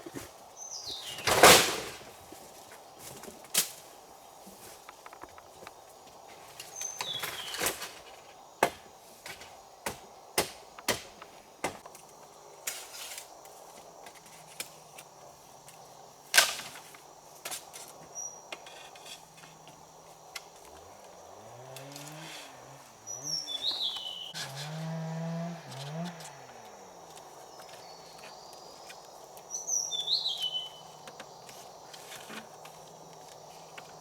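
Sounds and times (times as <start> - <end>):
bird chirp: 0.6 - 1.3, 6.7 - 7.7, 23.0 - 24.4, 29.5 - 31.0
chopping strikes on wood: 8.6 - 11.9.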